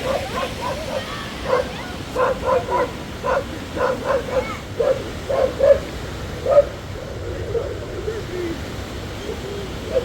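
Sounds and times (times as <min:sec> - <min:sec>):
dog barking: 0:00.0 - 0:06.8.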